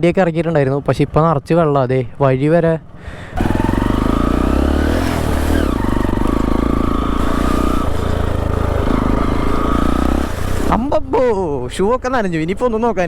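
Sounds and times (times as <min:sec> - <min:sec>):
motorcycle engine running: 0:03.3 - 0:11.0.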